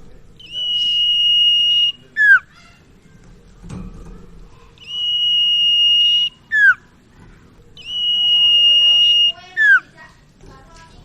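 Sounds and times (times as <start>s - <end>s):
bird whistling song: 0.4s - 2.6s, 4.8s - 6.9s, 7.8s - 10.0s.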